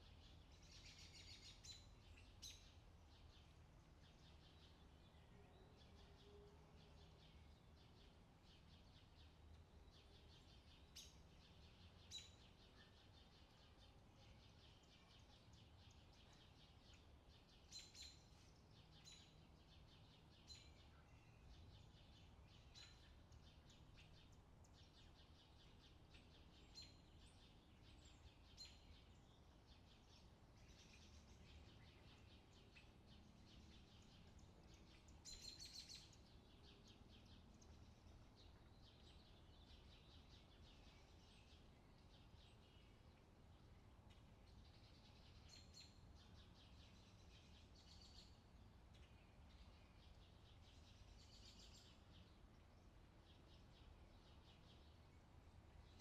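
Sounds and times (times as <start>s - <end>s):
low steady background hum: 0.0s - 56.0s.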